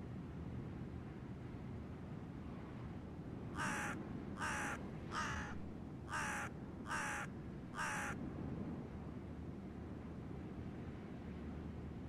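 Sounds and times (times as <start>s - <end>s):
bird giving harsh calls: 3.6s - 8.2s.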